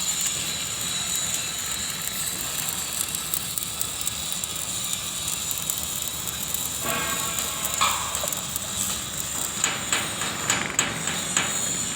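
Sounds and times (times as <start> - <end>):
welding arc crackling and hissing: 0.0 - 11.9
hammer knocking on steel: 9.4 - 11.8.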